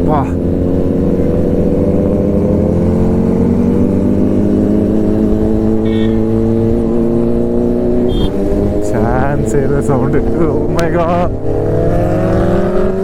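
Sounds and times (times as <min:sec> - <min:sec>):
motorcycle engine running: 0:00.0 - 0:13.0
short high beep: 0:08.1 - 0:08.3.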